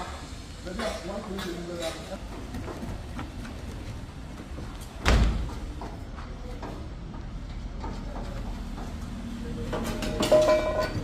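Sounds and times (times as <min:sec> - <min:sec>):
faint knocks and clatter: 0:00.7 - 0:11.0
heavy thud: 0:05.0 - 0:05.6.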